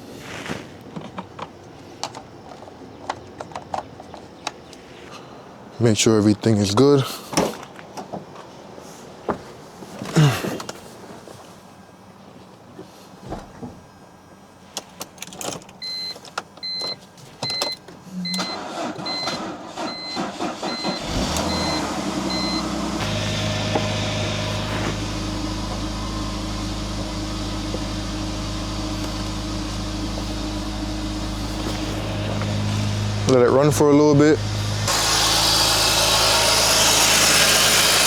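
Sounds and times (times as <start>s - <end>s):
car warning chime beeping: 15.8s - 34.5s
car engine starting and idling: 17.6s - 38.0s.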